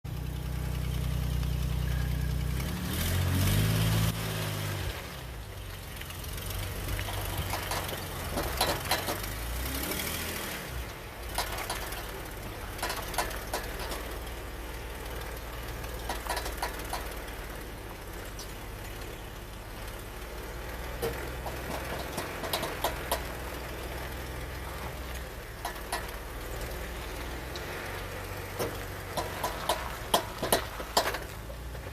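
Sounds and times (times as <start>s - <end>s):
car engine running: 0.0s - 31.9s
sharp clicking from drivetrain: 6.0s - 10.1s, 10.9s - 19.2s, 20.9s - 23.5s, 24.5s - 31.5s.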